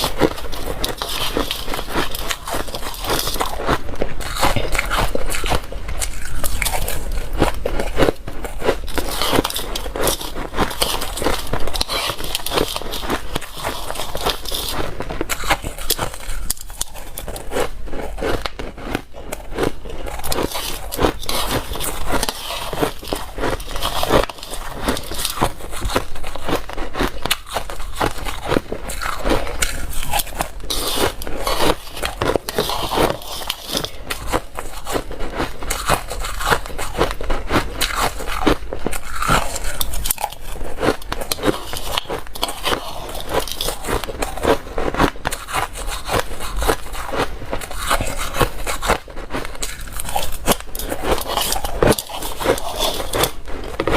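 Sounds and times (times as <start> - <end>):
chewing ice crunching: 0.0 - 53.9.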